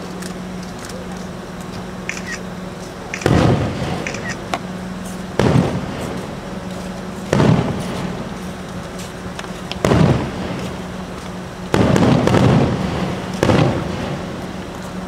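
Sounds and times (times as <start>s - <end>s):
faint firework crackles: 0.0s - 15.0s
firework booms: 3.2s - 4.2s, 5.3s - 6.6s, 7.3s - 8.4s, 9.8s - 14.8s.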